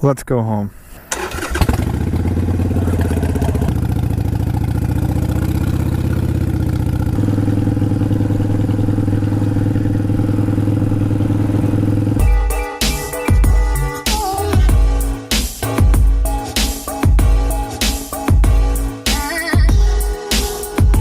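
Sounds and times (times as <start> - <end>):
motorcycle engine idling: 1.2 - 12.2
music: 12.2 - 21.0.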